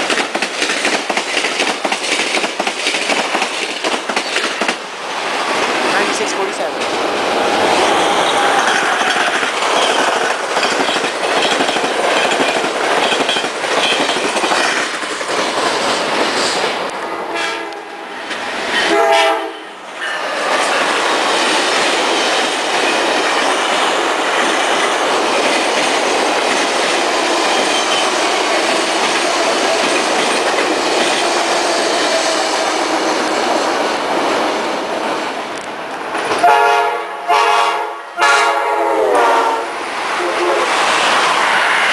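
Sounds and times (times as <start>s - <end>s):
train wheels rushing on rails: 0.0s - 41.9s
train horn blasts: 17.1s - 18.0s, 18.8s - 19.8s, 36.4s - 39.8s.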